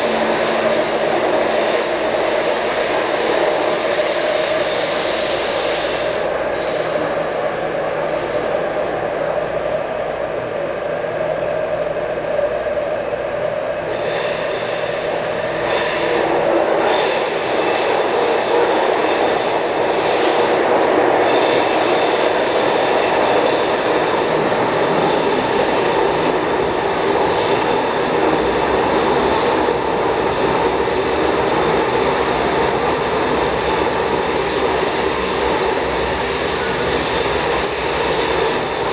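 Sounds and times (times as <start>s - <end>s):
thin high whine: 0.0s - 8.6s, 13.8s - 38.9s
train wheels running on rail: 0.0s - 38.9s.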